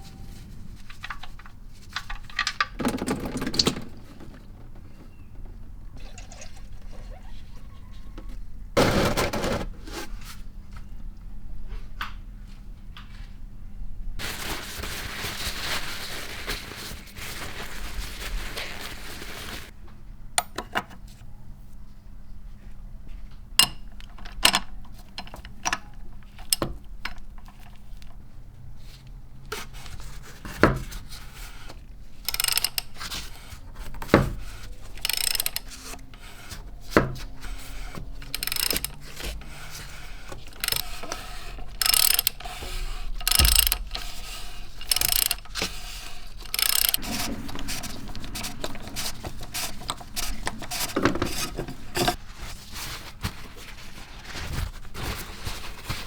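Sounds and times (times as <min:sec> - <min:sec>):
hand tools clicking and knocking: 0:00.0 - 0:06.5, 0:07.2 - 0:09.8, 0:32.3 - 0:52.2
rasping strokes: 0:35.0 - 0:52.2.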